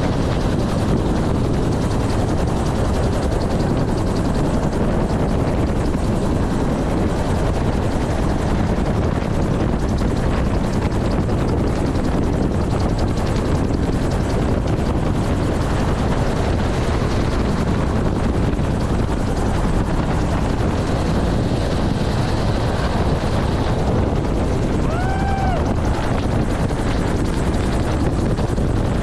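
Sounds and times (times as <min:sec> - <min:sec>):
helicopter rotor and engine: 0:00.0 - 0:29.0.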